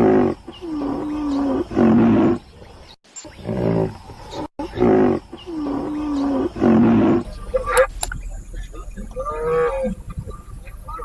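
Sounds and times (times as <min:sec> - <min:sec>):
animal calling loudly: 0:04.6 - 0:08.1.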